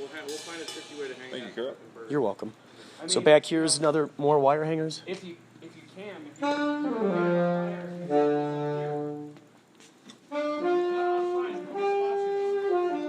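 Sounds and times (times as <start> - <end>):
saxophone playing long notes: 6.4 - 9.4, 10.2 - 13.0.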